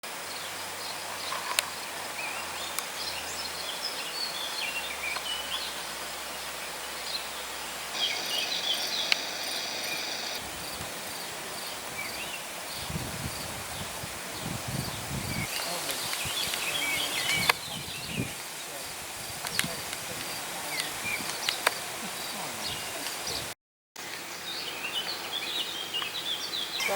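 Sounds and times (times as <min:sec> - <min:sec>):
steady hiss: 0:00.1 - 0:26.9
insect-like buzz: 0:00.2 - 0:23.5
bird chirps: 0:00.3 - 0:13.4, 0:14.4 - 0:23.5, 0:24.2 - 0:26.9
sharp clicks: 0:19.4 - 0:21.8.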